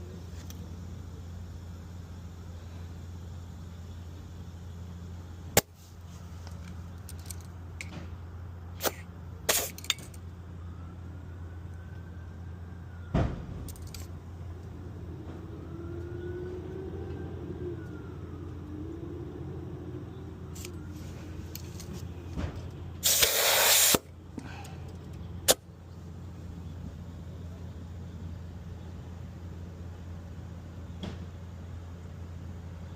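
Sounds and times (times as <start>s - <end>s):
steady low hum: 0.0s - 32.9s
compressed air hiss: 8.8s - 9.8s, 23.0s - 24.1s.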